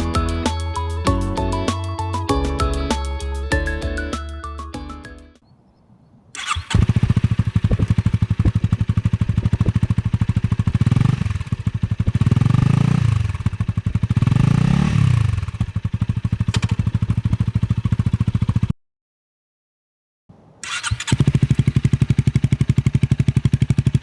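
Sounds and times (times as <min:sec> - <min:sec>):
motorcycle engine idling and revving: 0:06.4 - 0:18.8, 0:20.3 - 0:24.0.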